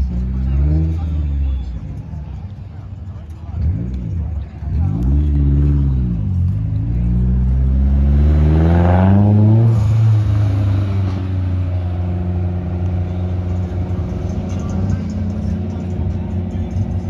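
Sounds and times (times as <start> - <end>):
car engine revving and idling: 0.0 - 17.0.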